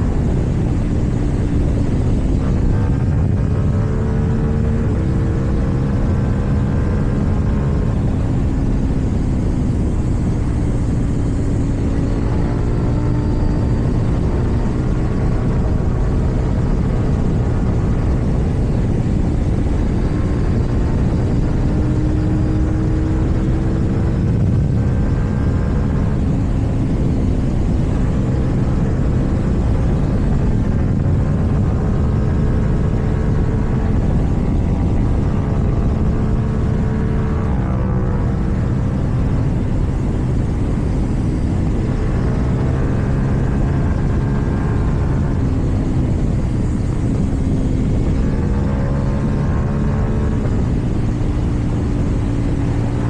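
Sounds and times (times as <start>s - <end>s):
motorcycle engine running: 0.0s - 53.0s
wind rumble on microphone: 0.0s - 53.0s.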